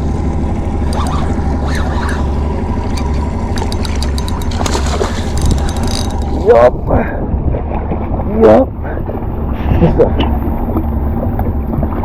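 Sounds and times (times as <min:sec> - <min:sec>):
wind buffeting microphone: 0:03.9 - 0:12.0.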